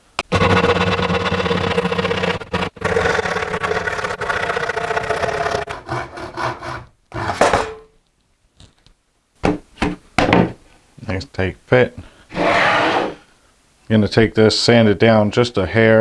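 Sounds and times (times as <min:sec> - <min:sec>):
saw cutting wood board: 0:00.1 - 0:07.6, 0:12.3 - 0:13.2.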